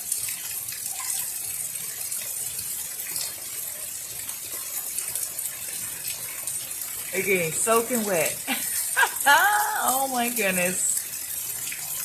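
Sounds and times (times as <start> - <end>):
heavy rain falling: 3.0 - 12.0.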